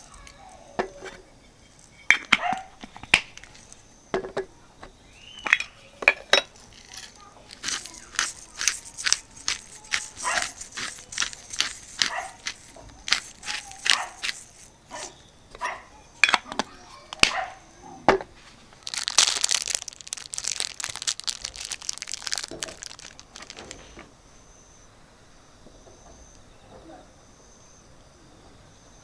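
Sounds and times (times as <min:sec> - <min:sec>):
cooking gear clacking: 0:00.0 - 0:17.5, 0:18.8 - 0:24.0
dense crackling: 0:18.8 - 0:24.0.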